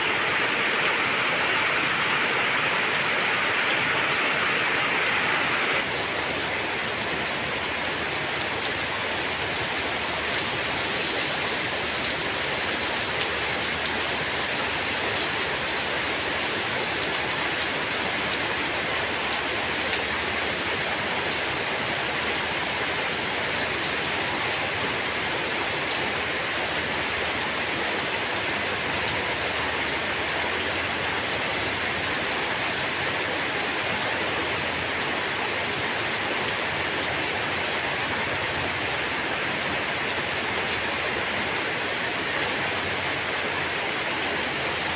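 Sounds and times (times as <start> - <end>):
steady rain falling: 0.0 - 44.9
rain drop ticks: 5.8 - 10.8, 11.6 - 14.2, 18.1 - 44.9.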